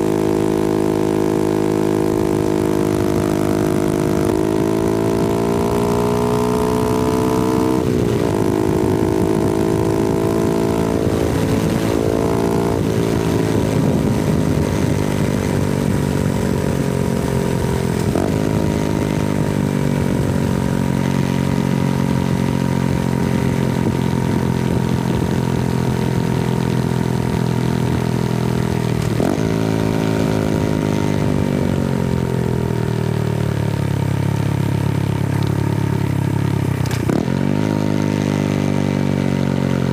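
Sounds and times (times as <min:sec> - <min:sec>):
motorcycle engine running: 0:00.0 - 0:39.9
light wind noise: 0:02.8 - 0:31.9.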